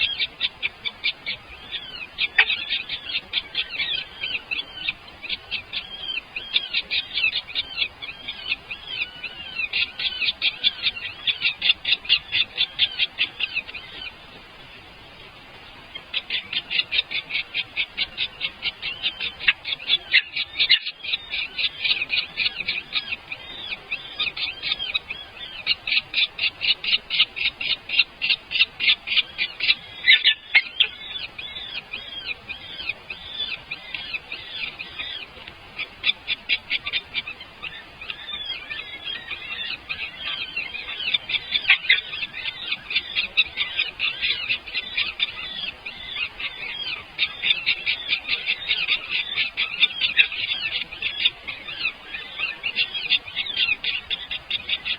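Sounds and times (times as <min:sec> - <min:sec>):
nestling birds chirping: 0:00.0 - 0:54.9.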